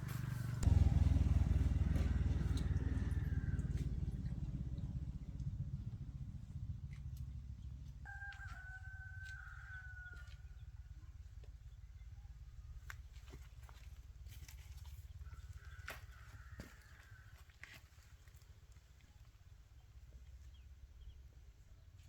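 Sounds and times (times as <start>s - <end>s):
small engine pulsing: 0.0s - 16.5s
rooster crowing: 0.5s - 4.1s, 8.0s - 10.4s.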